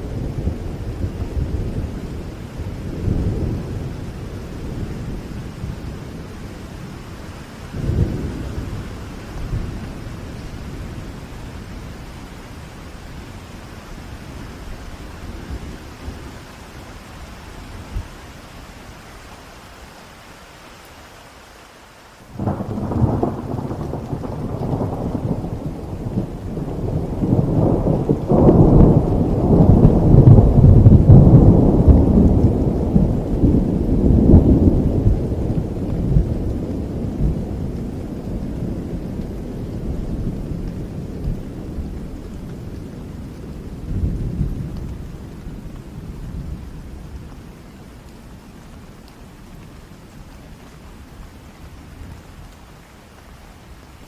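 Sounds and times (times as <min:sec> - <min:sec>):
thunder rumbling and cracking: 0:00.0 - 0:12.0, 0:22.3 - 0:50.3
steady rain: 0:00.0 - 0:54.0.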